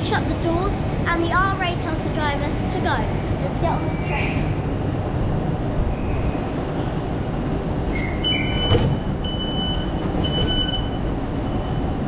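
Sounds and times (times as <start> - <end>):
electric train rumble: 0.0 - 12.0
high electronic door beeps: 8.0 - 12.0.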